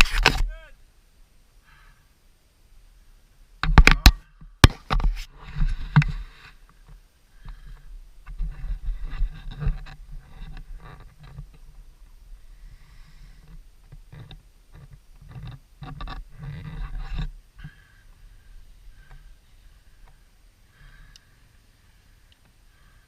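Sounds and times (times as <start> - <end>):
scraping and rustling: 4.8 - 11.8.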